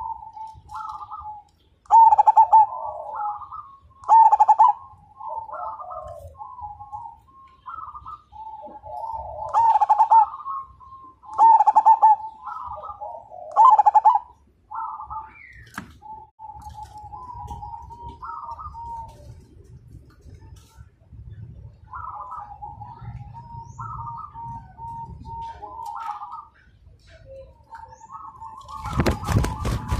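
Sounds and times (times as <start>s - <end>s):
dove cooing: 0.0s - 19.7s, 21.8s - 29.9s.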